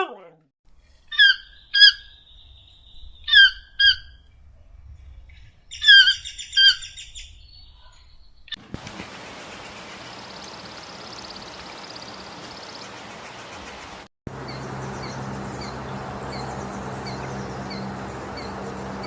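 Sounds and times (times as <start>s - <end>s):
high-pitched animal chirping: 1.1s - 2.2s
steady hiss: 8.8s - 14.0s.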